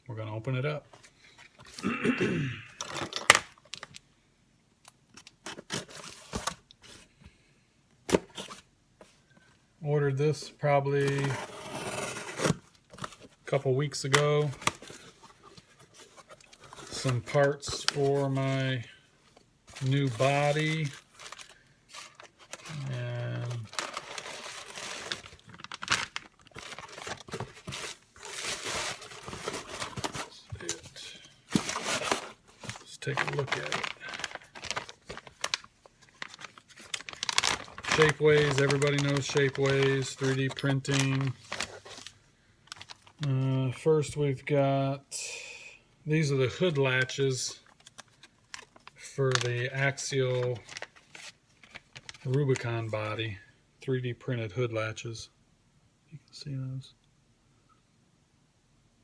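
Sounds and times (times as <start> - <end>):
packaging rustling: 11.0 - 43.6, 46.7 - 52.8
cardboard tearing: 11.1 - 12.6, 19.8 - 30.8, 31.5 - 42.1.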